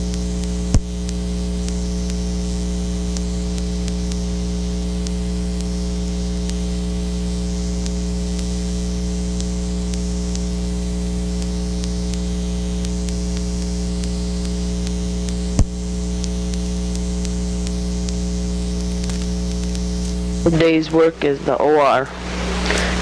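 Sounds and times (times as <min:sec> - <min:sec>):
faint ticks: 0:00.0 - 0:06.7, 0:07.8 - 0:10.6, 0:11.2 - 0:20.4
electrical mains hum: 0:00.0 - 0:23.0
sharp pop: 0:00.7 - 0:00.9
faint hiss: 0:21.8 - 0:23.0.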